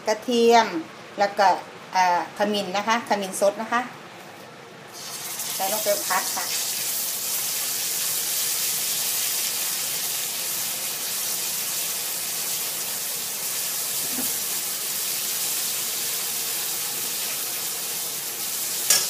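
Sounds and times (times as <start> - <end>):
paste sizzling in hot oil: 4.9 - 19.0.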